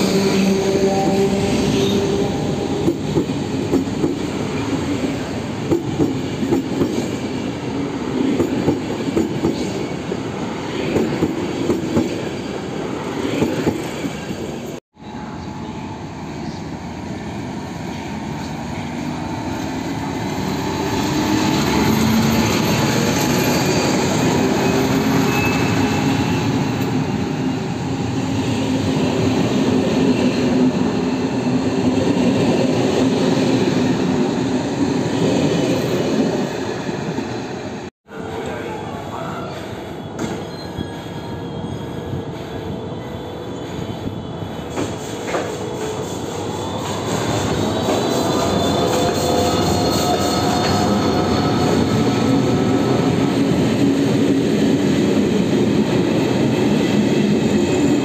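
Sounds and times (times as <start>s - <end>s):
passenger train drawing in: 0.0s - 58.0s
gliding wheel squeal: 20.9s - 26.8s, 39.2s - 45.1s.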